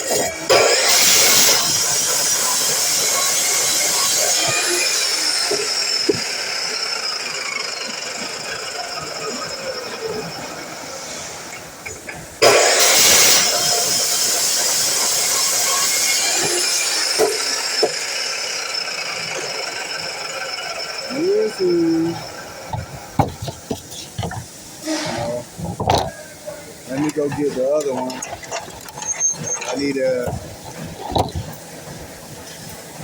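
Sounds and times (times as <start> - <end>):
miter saw motor whining: 0.1 - 11.0, 12.4 - 31.5.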